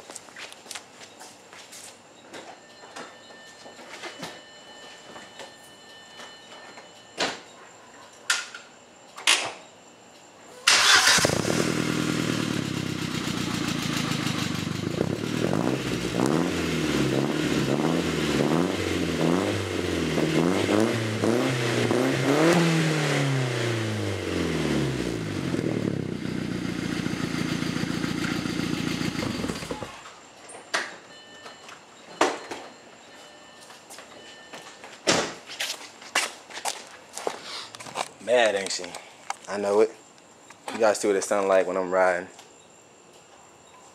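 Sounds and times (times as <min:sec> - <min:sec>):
car engine idling and revving: 0:10.9 - 0:30.0.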